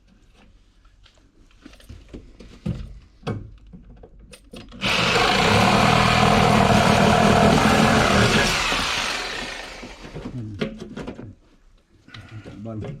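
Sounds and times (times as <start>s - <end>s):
reciprocating saw cutting wood: 4.8s - 10.3s.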